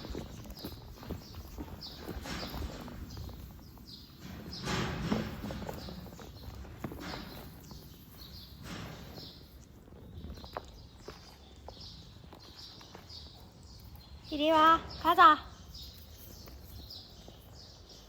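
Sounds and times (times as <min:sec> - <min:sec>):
footsteps and rustling on ground: 0:00.0 - 0:18.0.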